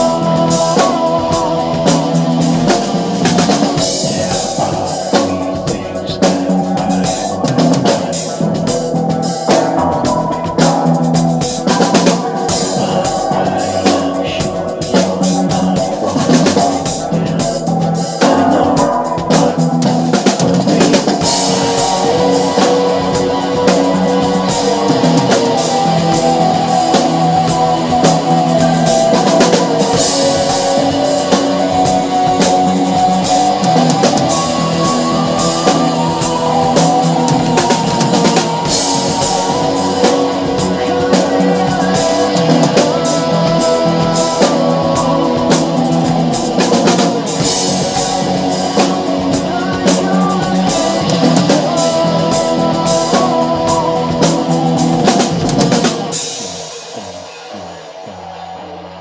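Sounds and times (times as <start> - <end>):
rock backing track with electric guitar: 0.0 - 57.0
drum kit with cymbals: 0.0 - 58.0.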